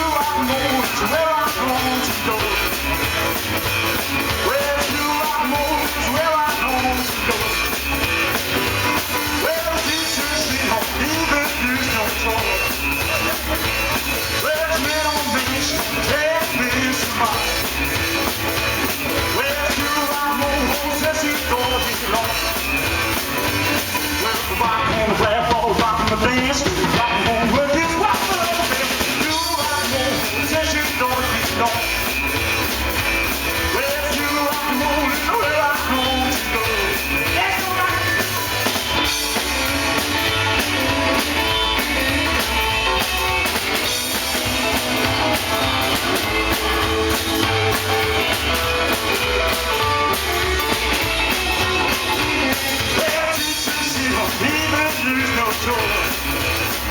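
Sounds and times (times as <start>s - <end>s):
lead vocal singing: 0.0s - 2.6s, 24.1s - 31.9s, 33.7s - 38.4s, 52.4s - 56.0s
rockabilly band playing live: 0.0s - 56.9s.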